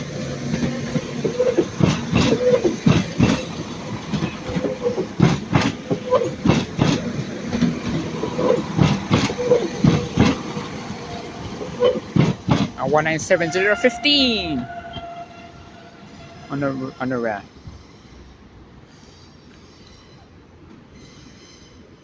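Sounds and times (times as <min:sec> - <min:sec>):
train wheels clicking over track joints: 0:00.0 - 0:13.5
train humming: 0:00.0 - 0:22.0.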